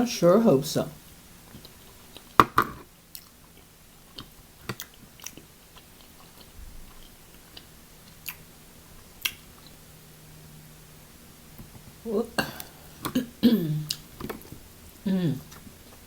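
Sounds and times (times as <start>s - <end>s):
chewing and biting: 1.5s - 2.4s, 3.1s - 9.8s.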